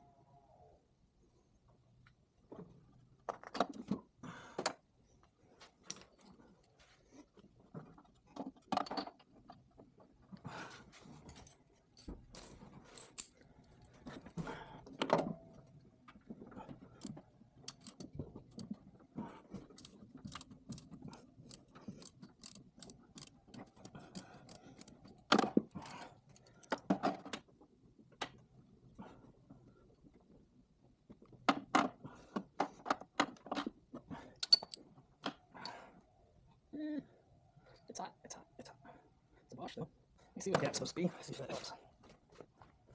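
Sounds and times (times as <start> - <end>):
hand tools and metal parts clinking: 10.9 - 14.4, 16.5 - 27.3, 32.7 - 35.0.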